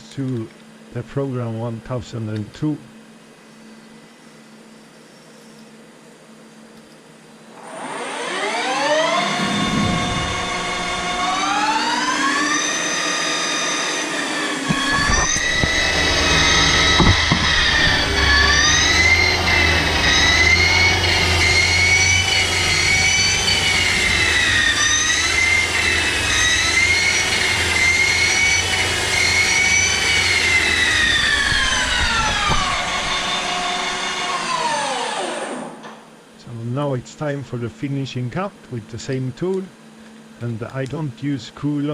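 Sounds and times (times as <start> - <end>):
lathe spindle whining: 7.4 - 36.0
low machine rumble: 9.3 - 12.2, 14.6 - 34.5.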